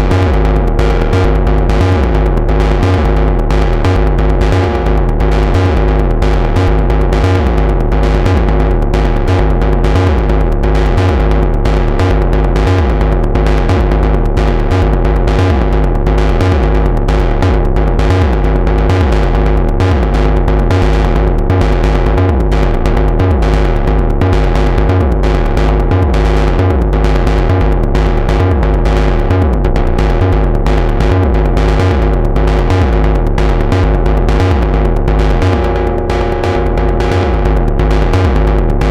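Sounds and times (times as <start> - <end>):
held synthesizer chord: 0.0 - 7.6, 34.3 - 38.9
deep synthesizer hits: 0.0 - 38.9.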